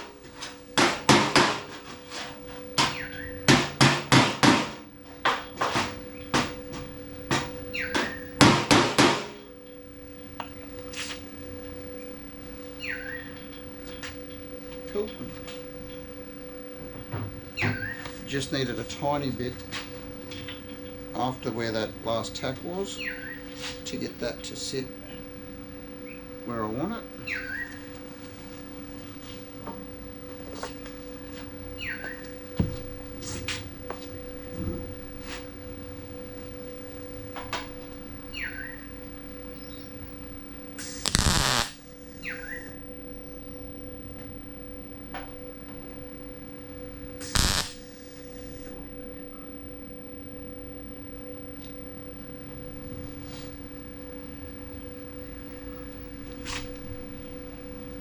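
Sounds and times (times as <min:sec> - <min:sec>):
steady hum: 0:00.0 - 0:22.8, 0:38.8 - 0:58.0
welding crackling hiss: 0:40.8 - 0:41.9, 0:47.2 - 0:48.7.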